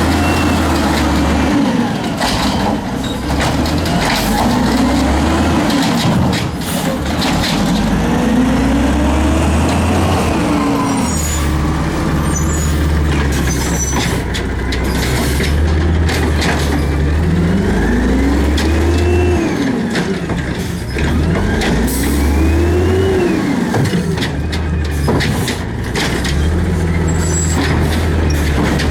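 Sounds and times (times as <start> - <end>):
clanks and knocks: 0.0 - 8.1, 12.8 - 22.0, 23.7 - 28.9
diesel engine revving: 0.0 - 28.9.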